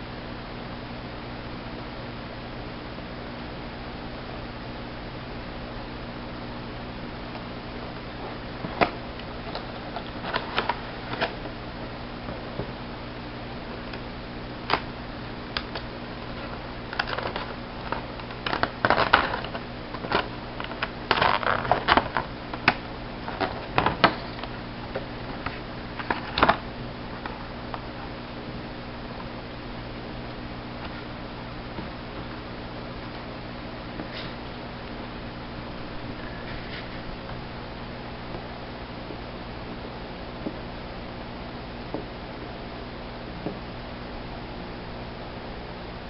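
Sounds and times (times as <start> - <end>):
steady low hum: 0.0 - 46.0
packaging clicks and rustles: 8.6 - 11.5, 15.6 - 26.6.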